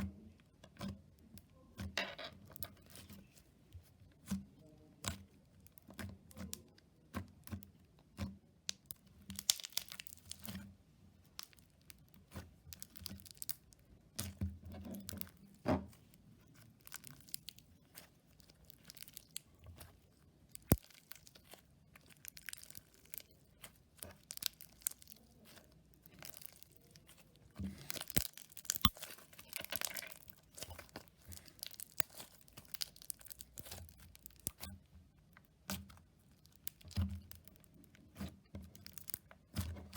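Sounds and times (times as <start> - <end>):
slime crackling and popping: 8.7 - 10.6, 11.2 - 15.3, 16.4 - 34.9, 35.5 - 39.9.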